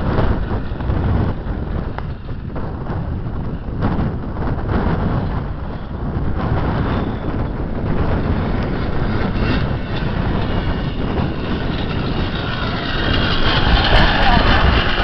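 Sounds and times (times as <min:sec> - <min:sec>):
wind buffeting microphone: 0:00.0 - 0:15.0
two-stroke motocross engine: 0:06.4 - 0:15.0.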